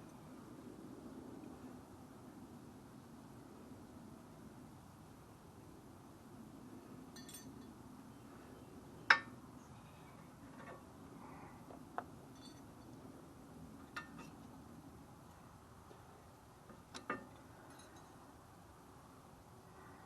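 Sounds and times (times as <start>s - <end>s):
metal brake clips clinking: 12.4s - 12.8s.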